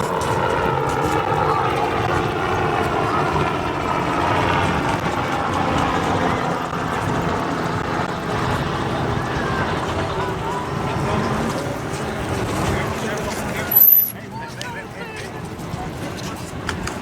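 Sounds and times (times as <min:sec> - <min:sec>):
road noise rumble: 0:00.0 - 0:17.0.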